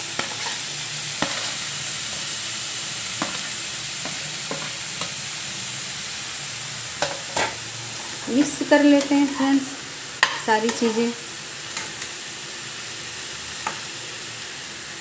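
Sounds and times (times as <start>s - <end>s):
vegetables sizzling in hot oil: 0.0s - 15.0s
utensils clicking against pan: 0.2s - 2.3s, 8.2s - 11.0s, 11.7s - 12.1s.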